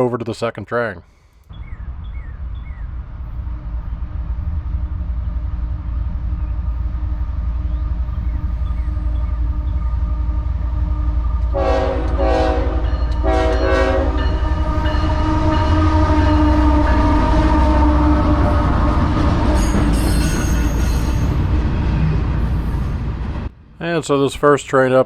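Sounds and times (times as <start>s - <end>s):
locomotive engine and rail rumble: 1.1s - 25.0s
train horn blasts: 9.0s - 20.7s.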